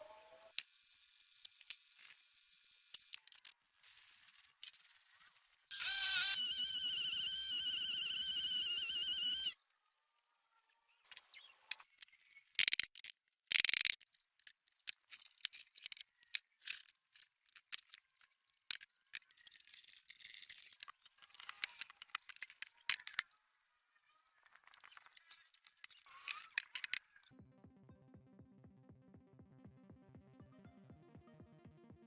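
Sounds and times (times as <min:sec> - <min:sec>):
rasping bursts: 0:05.7 - 0:09.6.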